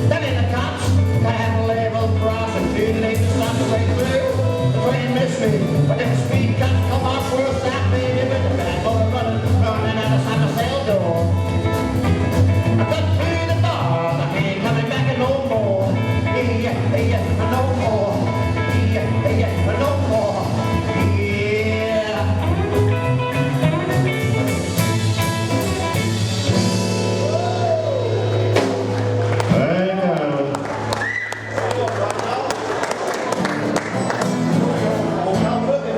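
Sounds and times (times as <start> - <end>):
electric guitar lead: 0.0 - 35.9
upright double bass: 0.0 - 35.9
drum beat: 28.4 - 29.8.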